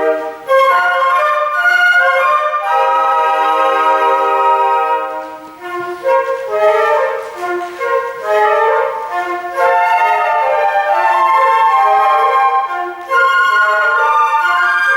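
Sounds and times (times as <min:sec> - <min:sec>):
flute ensemble playing: 0:00.0 - 0:14.9.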